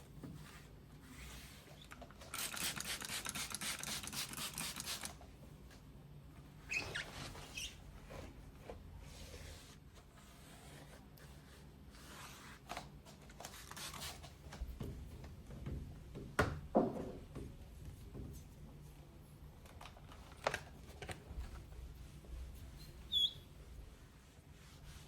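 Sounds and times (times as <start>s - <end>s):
rubs and rustles: 23.7s - 25.0s.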